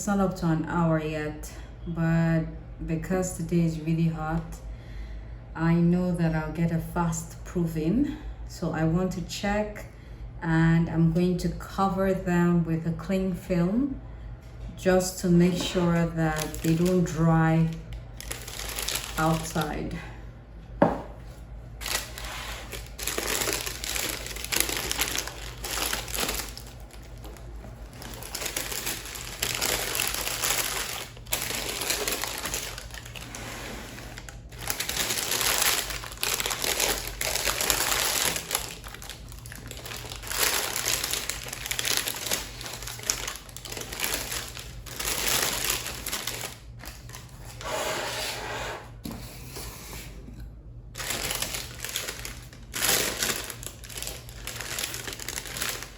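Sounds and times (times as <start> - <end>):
steady low hum: 0.0 - 55.9
cling film crinkling: 16.2 - 19.6, 21.8 - 33.4, 34.1 - 47.4, 51.0 - 55.9.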